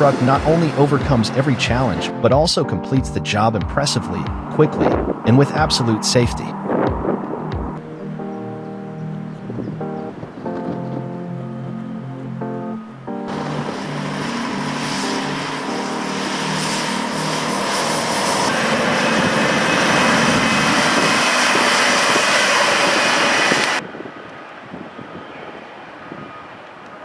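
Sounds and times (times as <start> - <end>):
loud engine roar with whine: 0.0 - 2.2, 13.1 - 27.0.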